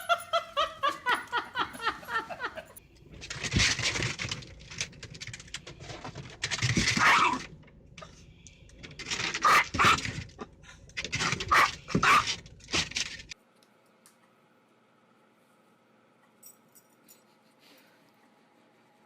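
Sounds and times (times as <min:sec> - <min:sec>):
dog barking: 0:09.4 - 0:10.0, 0:11.5 - 0:12.3.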